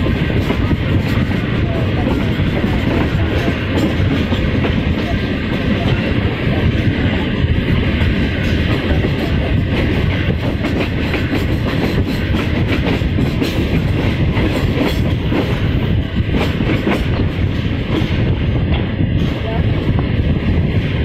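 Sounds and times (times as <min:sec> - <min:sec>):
clickety-clack of rail joints: 0:00.0 - 0:21.0
train wheels rumbling on track: 0:00.0 - 0:21.0.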